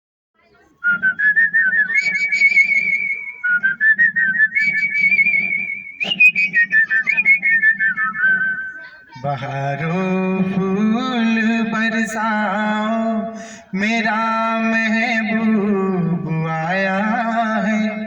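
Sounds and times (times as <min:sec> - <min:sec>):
person whistling a melody: 0:00.8 - 0:08.9.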